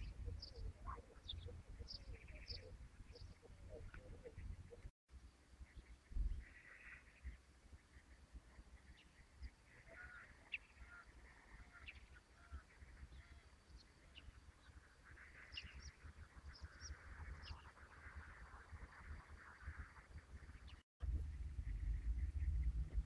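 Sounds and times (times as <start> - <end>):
bird chirps and calls: 0.0 - 4.9
low microphone rumble: 21.0 - 23.0.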